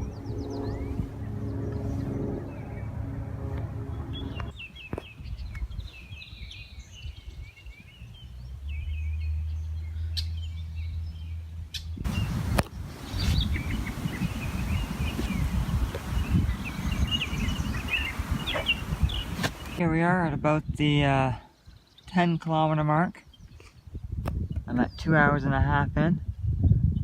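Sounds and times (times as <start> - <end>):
loud rough noise: 0.0 - 4.5
low engine-like hum: 0.0 - 4.6
songbirds chirping: 0.0 - 27.0.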